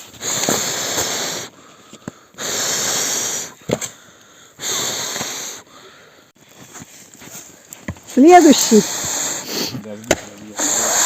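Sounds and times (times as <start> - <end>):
person blowing hissing breaths: 0.0 - 6.3, 8.5 - 9.8, 10.6 - 11.0.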